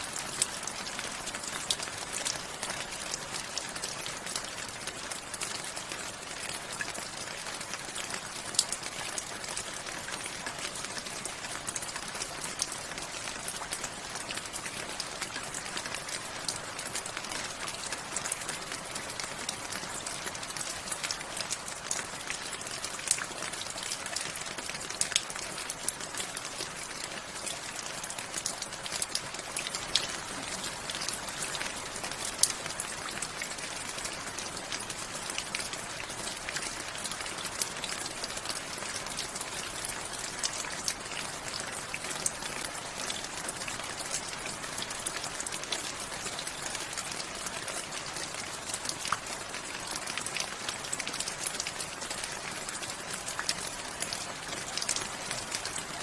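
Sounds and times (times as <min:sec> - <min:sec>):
raindrops pattering on a surface: 0:00.0 - 0:56.0.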